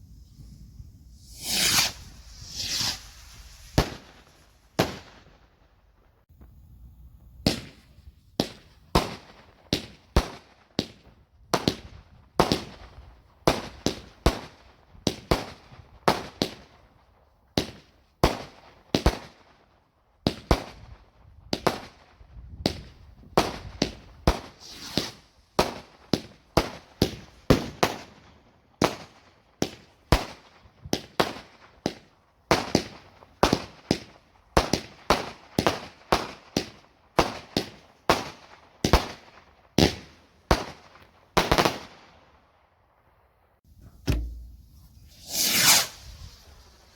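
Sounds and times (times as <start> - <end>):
fireworks bangs with crackling: 1.1 - 5.4, 20.3 - 42.1, 44.1 - 46.9.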